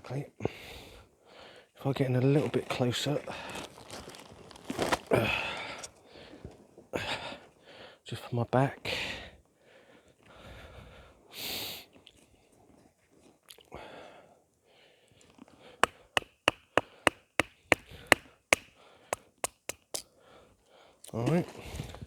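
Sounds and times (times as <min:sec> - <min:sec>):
baton knocking on knife: 0:15.8 - 0:20.0.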